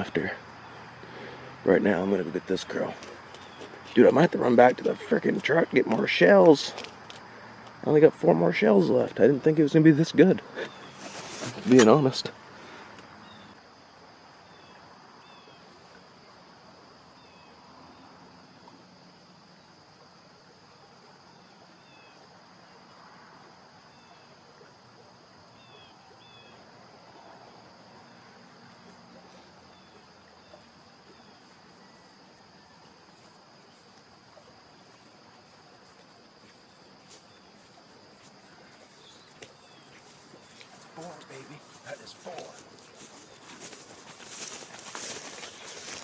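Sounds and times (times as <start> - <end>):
high-pitched insect trill: 0.0 - 46.0
small birds chirping: 2.3 - 5.0, 33.7 - 46.0.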